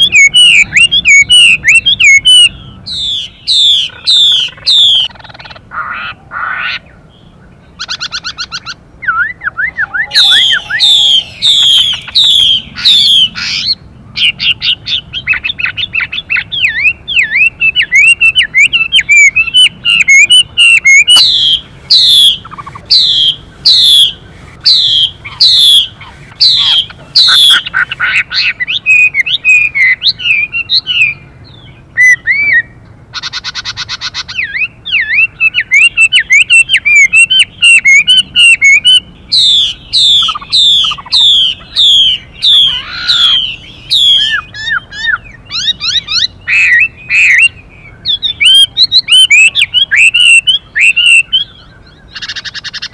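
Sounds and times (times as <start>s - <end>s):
bird singing whistles and trills: 0.0s - 5.3s, 6.9s - 52.9s
harsh buzzing bird note: 9.6s - 13.4s.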